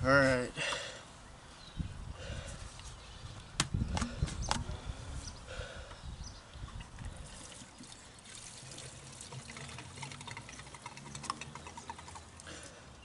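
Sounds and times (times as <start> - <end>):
liquid pouring with gurgles: 6.8 - 12.5.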